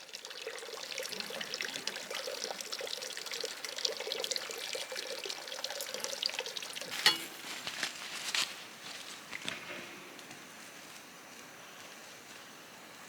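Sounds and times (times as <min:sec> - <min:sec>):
water running and trickling: 0:00.0 - 0:08.3.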